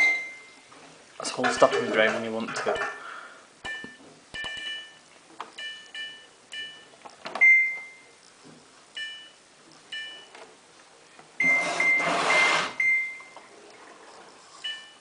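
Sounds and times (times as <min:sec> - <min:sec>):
washing machine control panel beeps: 0:00.0 - 0:00.6, 0:03.6 - 0:05.0, 0:05.6 - 0:08.1, 0:09.0 - 0:10.4, 0:11.4 - 0:13.5, 0:14.6 - 0:15.0.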